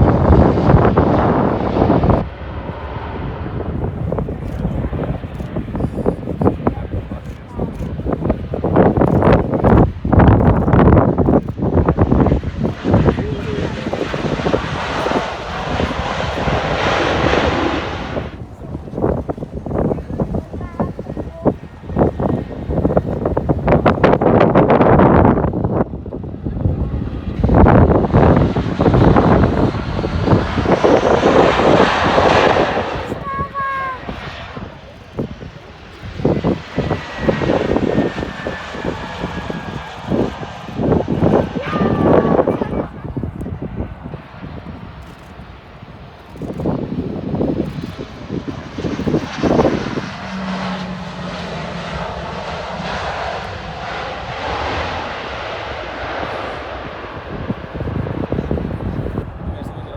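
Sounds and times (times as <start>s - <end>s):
airliner engine rushing: 0.0s - 59.9s
wind buffeting microphone: 0.0s - 59.9s.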